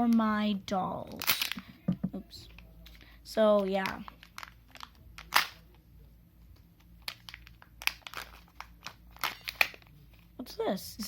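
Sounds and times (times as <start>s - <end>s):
plastic packaging crinkling: 1.0s - 1.7s, 2.4s - 5.8s, 6.8s - 10.3s.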